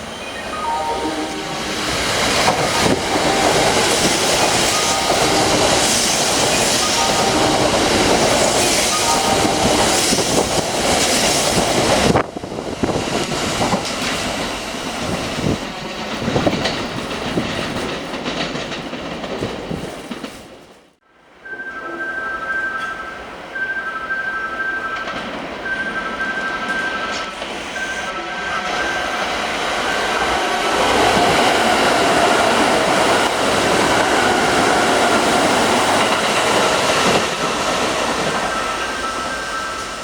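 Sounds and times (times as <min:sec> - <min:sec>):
steady tones: 0:00.0 - 0:10.8
electric train wheels on rails: 0:00.0 - 0:20.8, 0:21.4 - 0:40.0
wheels clacking over rail joints: 0:13.2 - 0:20.6.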